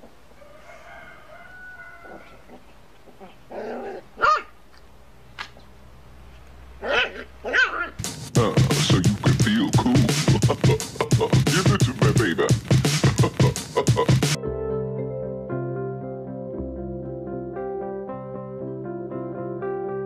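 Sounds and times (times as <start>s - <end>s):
dog barking: 3.8s - 4.6s, 6.8s - 8.0s
dog whining: 6.8s - 8.0s
loud music: 8.0s - 15.0s.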